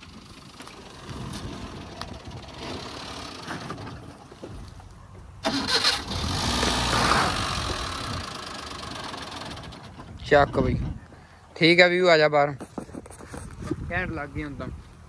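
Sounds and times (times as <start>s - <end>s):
car engine starting and running: 0.0s - 4.5s, 5.4s - 10.3s.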